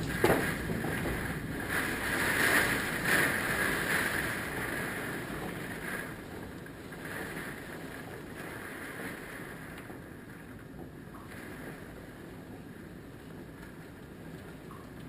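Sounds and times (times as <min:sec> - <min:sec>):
strong wind gusting: 0:00.0 - 0:09.7
wind buffeting microphone: 0:00.0 - 0:15.0.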